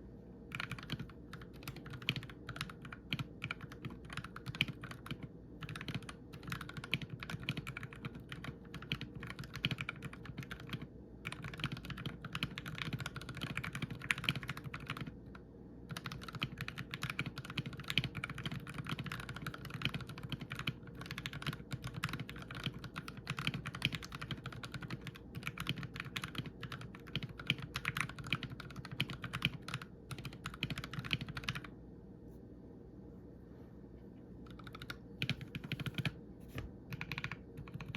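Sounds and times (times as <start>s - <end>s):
fast typing on mechanical keyboard: 0.5s - 31.7s, 34.5s - 36.2s, 36.9s - 37.9s.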